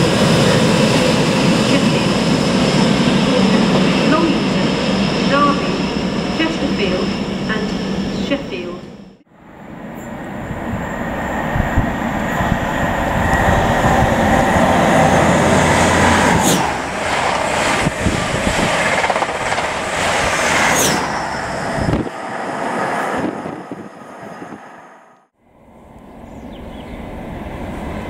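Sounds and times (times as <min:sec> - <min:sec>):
train engine: 0:00.0 - 0:28.0
high wheel squeals: 0:20.3 - 0:22.4.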